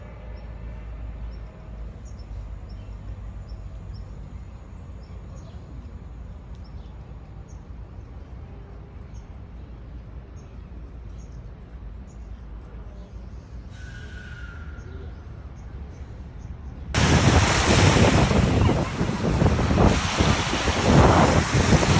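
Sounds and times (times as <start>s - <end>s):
sea with low rumble: 17.0s - 21.9s.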